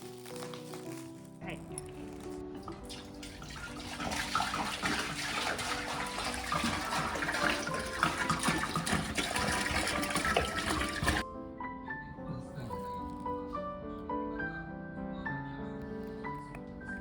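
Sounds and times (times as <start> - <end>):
background music: 0.0 - 17.0
water rushing and splashing: 2.7 - 11.2.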